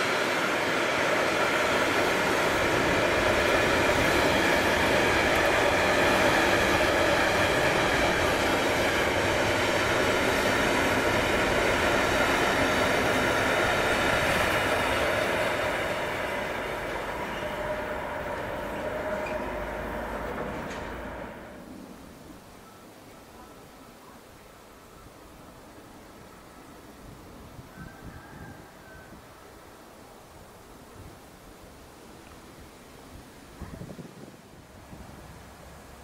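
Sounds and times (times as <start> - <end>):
freight wagons rumbling on rails: 0.0 - 22.6.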